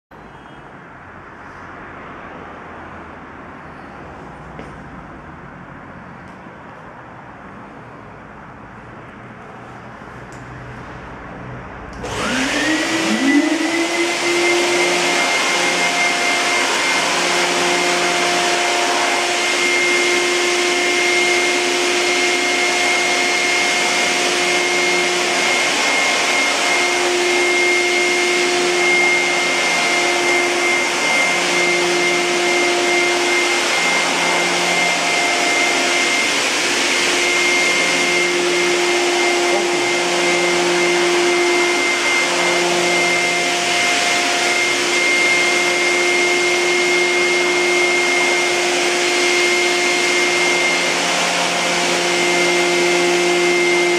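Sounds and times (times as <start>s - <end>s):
vacuum cleaner motor whine: 11.9s - 53.9s.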